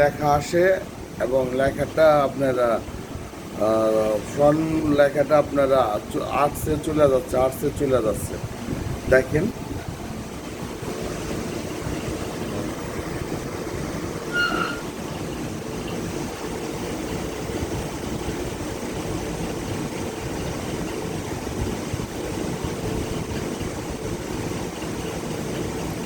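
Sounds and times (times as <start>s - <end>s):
steady mechanical hum: 0.0s - 26.0s
short electronic beep: 14.3s - 14.9s.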